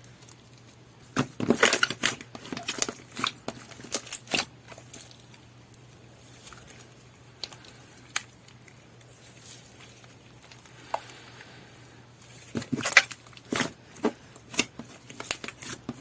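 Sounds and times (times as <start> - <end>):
low steady hum: 0.0 - 16.0
slime squishing: 0.0 - 16.0.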